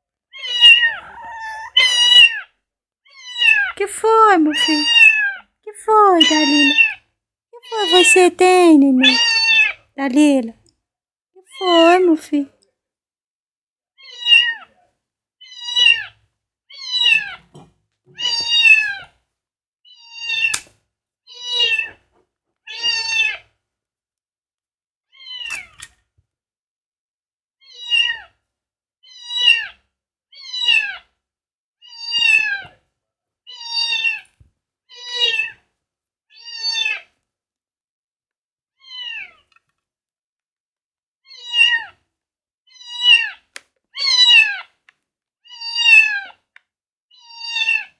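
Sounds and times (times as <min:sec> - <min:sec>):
cat meowing: 0:00.4 - 0:02.5, 0:03.1 - 0:07.0, 0:07.7 - 0:09.8, 0:14.0 - 0:14.7, 0:15.5 - 0:16.1, 0:16.8 - 0:19.0, 0:19.9 - 0:20.6, 0:21.3 - 0:22.0, 0:22.7 - 0:23.4, 0:33.5 - 0:34.2, 0:35.0 - 0:35.6, 0:47.2 - 0:47.9.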